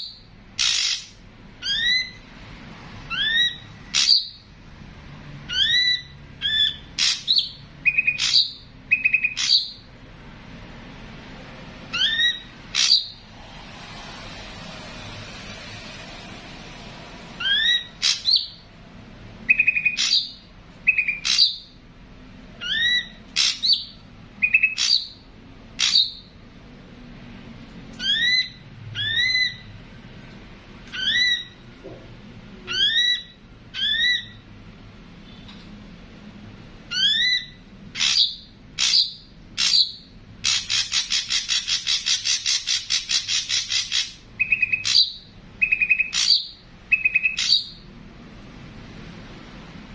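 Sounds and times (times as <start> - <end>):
bird chattering rattle: 0.6 - 1.8
bird whistles and clicks: 0.6 - 2.2.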